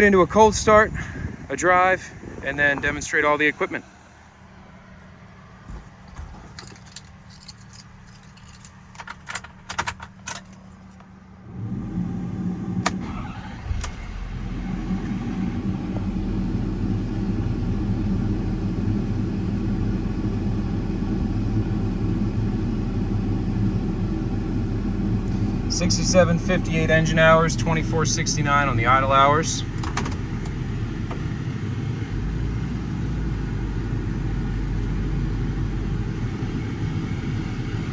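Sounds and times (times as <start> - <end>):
diesel engine starting and idling: 0.0 - 37.9
keys jingling: 5.8 - 11.0.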